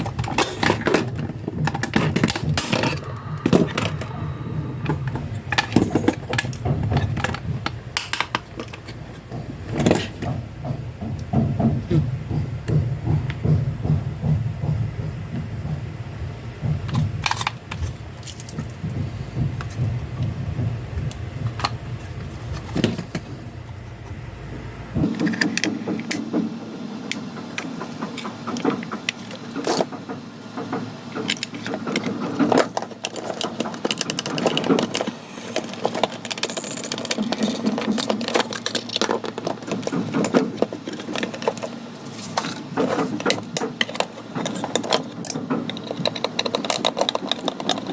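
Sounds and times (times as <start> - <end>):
small hard parts clicking: 0.0 - 13.6, 16.8 - 23.3, 27.1 - 47.9
low hum: 1.1 - 26.0.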